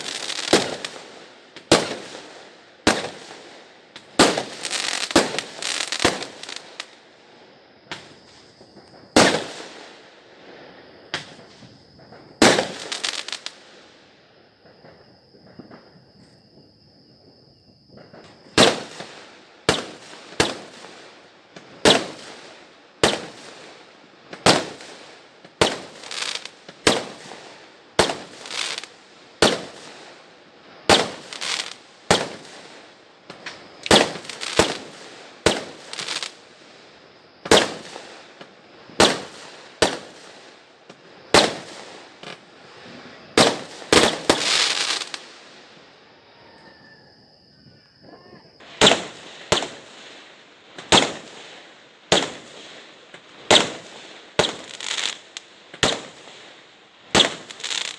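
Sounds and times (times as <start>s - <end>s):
fireworks bangs: 0.0s - 6.9s, 7.9s - 13.7s, 24.3s - 30.0s, 30.8s - 36.5s, 37.4s - 45.4s, 48.6s - 57.9s
fireworks crackle: 0.0s - 7.0s, 7.9s - 14.0s, 18.0s - 45.9s, 48.6s - 57.9s.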